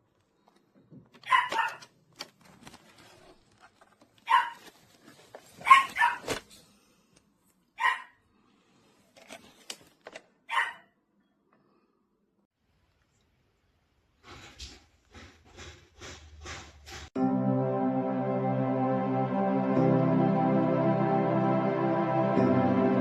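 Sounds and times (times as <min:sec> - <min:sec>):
dog barking: 0:01.2 - 0:01.9, 0:04.2 - 0:04.7, 0:05.6 - 0:06.4, 0:07.8 - 0:08.2, 0:10.5 - 0:11.0.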